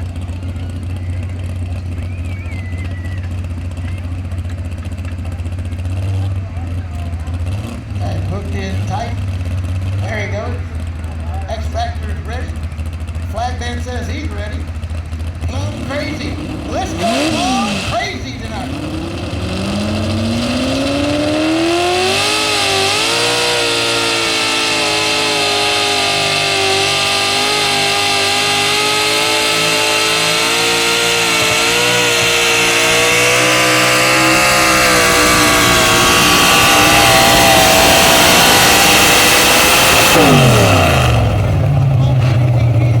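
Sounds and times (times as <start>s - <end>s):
pickup truck engine at full throttle: 0.0s - 43.0s.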